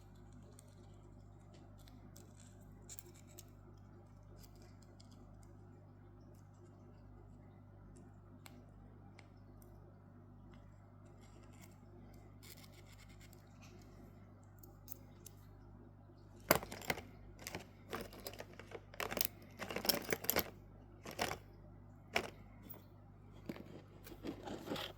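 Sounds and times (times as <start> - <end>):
faint low hum: 0.0 - 24.9
watch parts clicking and scraping: 0.2 - 5.4, 11.0 - 15.5, 16.4 - 21.5, 22.1 - 24.9.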